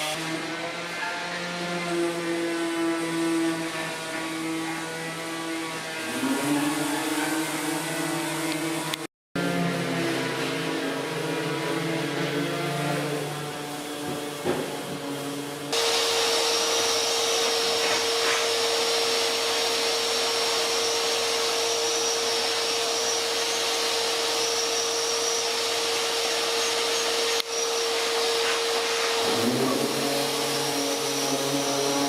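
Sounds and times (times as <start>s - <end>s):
electric machine whirring: 14.7s - 32.0s.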